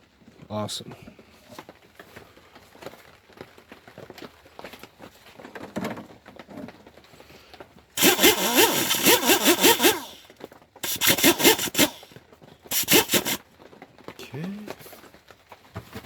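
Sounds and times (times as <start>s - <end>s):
air impact wrench hammering: 8.0s - 10.2s, 10.8s - 12.1s, 12.7s - 13.4s.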